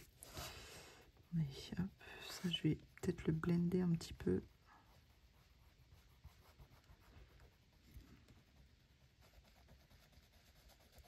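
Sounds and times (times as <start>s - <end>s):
colouring tool scratching on paper: 2.3s - 11.0s.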